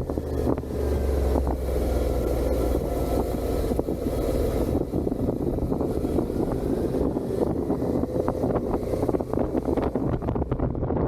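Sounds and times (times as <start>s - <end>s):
motorcycle engine running: 0.0s - 11.0s
wind noise on microphone: 0.0s - 11.0s.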